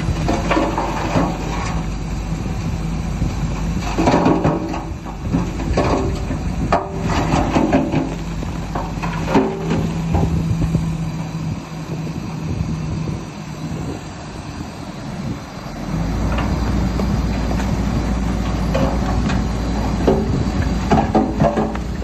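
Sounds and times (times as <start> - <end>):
metal clanks and knocks: 0.0 - 1.8, 3.8 - 10.7, 18.4 - 22.0
diesel engine rumbling: 0.0 - 22.0.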